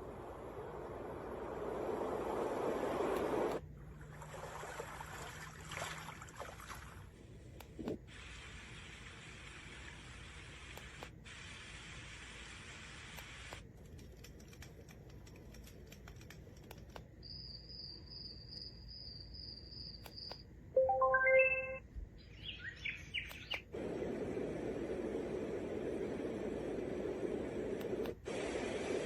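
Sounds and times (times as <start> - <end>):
hiss: 0.0 - 3.6, 7.9 - 13.7, 23.3 - 29.0
bird chirps: 17.2 - 23.7
faint pulsing high tone: 20.8 - 21.8.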